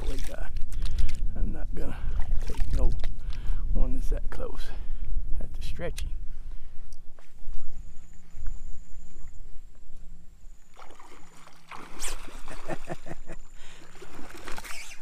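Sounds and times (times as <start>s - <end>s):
water sloshing: 10.4s - 15.0s.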